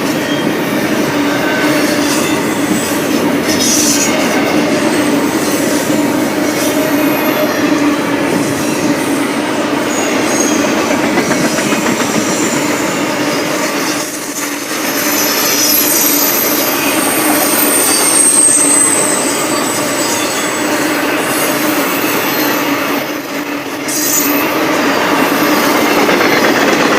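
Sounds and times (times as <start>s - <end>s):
freight train wheels rumbling: 0.0s - 26.9s
wheel squeal: 14.8s - 23.0s.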